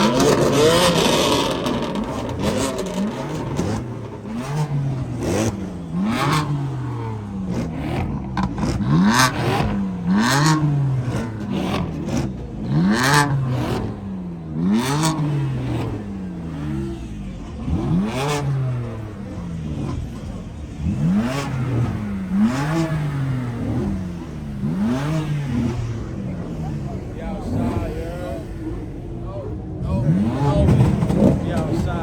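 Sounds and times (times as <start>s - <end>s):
car engine revving: 0.0s - 32.0s.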